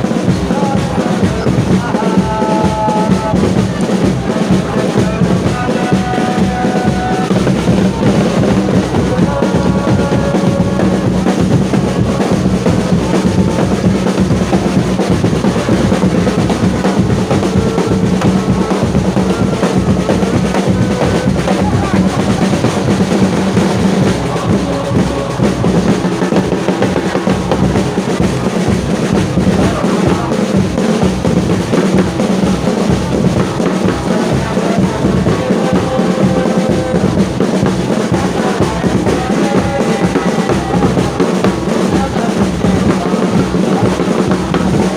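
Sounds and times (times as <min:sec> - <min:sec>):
crowd chanting: 0:00.0 - 0:44.9
drums beating fast: 0:00.0 - 0:44.9.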